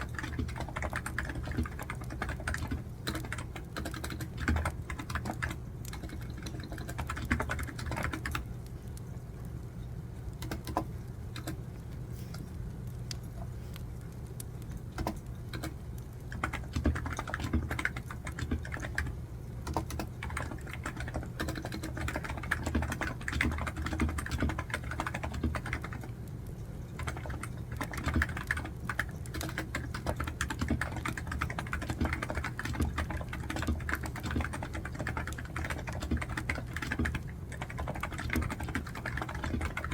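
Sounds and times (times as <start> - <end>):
keyboard typing: 0.0 - 8.4, 10.4 - 11.6, 15.0 - 26.2, 26.9 - 39.9
steady low hum: 0.0 - 39.9
wood fire crackling: 8.4 - 16.4.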